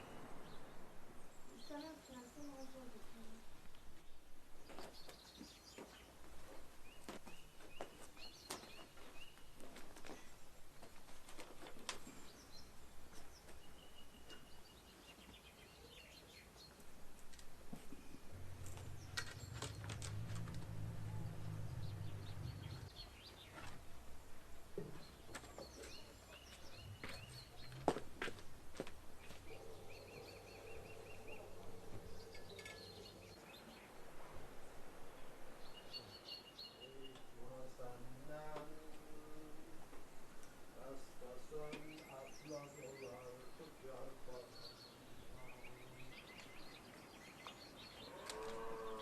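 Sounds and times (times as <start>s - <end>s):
wild birds chirping: 0.0s - 49.0s
faint low hum: 16.9s - 36.0s.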